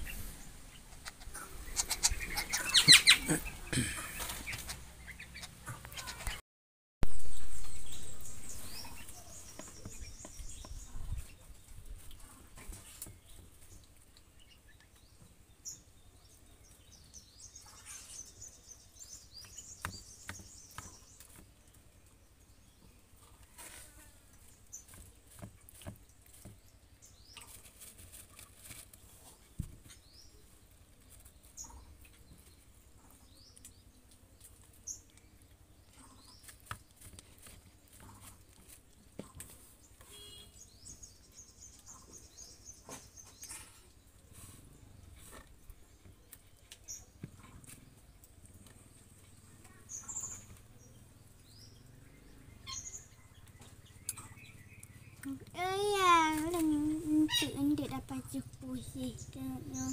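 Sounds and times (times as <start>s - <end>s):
high-pitched bird chirps: 1.6s - 3.3s, 52.6s - 53.2s
rustling: 23.1s - 40.7s.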